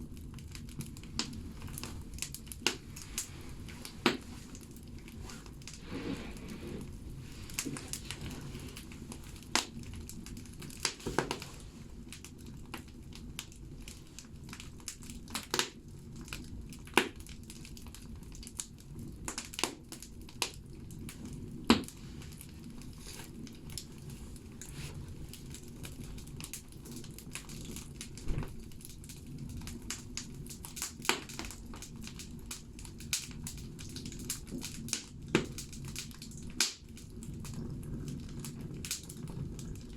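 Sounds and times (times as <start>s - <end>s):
logs crackling and popping in stove: 0.0s - 39.9s
low rumble of fire: 0.0s - 39.9s.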